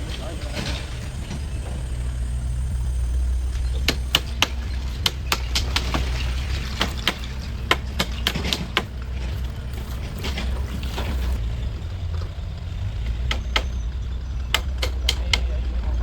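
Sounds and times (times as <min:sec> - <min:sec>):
steady low hum: 0:00.0 - 0:16.0
sharp knocks: 0:03.4 - 0:11.4, 0:13.0 - 0:15.6.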